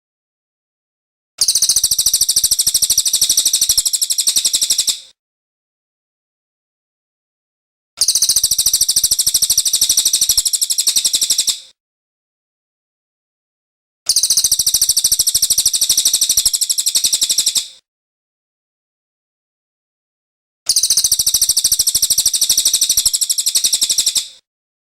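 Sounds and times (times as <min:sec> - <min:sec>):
songbird high-pitched trills: 0:08.0 - 0:11.6, 0:14.1 - 0:17.6, 0:20.7 - 0:24.3.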